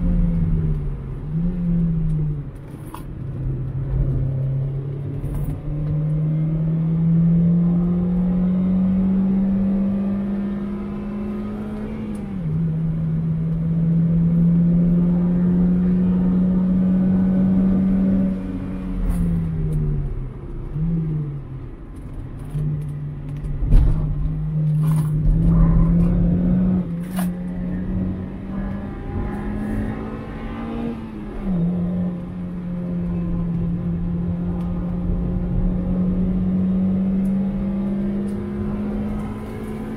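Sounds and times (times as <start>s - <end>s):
car engine revving with upshifts: 0.0s - 39.9s
loud thump: 23.6s - 24.2s.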